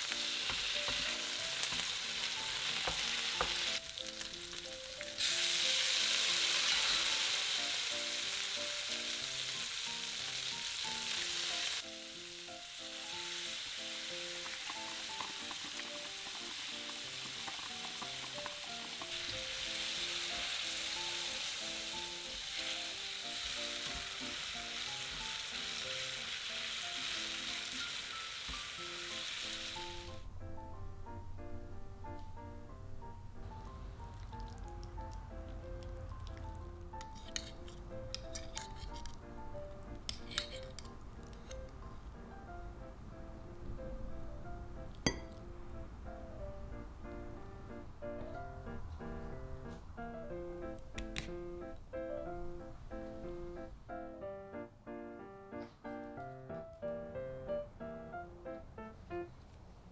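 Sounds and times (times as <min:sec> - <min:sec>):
food sizzling in a frying pan: 0:00.0 - 0:30.2
gentle piano music: 0:00.0 - 0:59.9.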